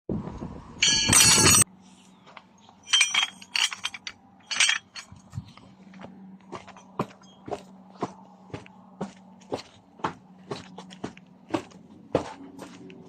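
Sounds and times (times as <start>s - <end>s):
light clinks and taps: 2.8s - 5.6s.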